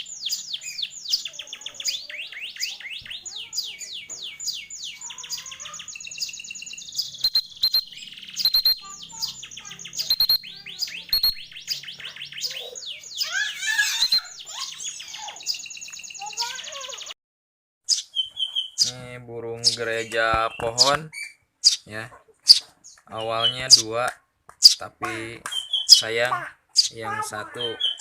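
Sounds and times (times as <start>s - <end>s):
canary trilling song: 0.0s - 17.2s, 17.8s - 24.0s, 25.5s - 28.0s
sharp clicks: 7.2s - 8.8s, 10.0s - 10.5s, 11.1s - 11.5s.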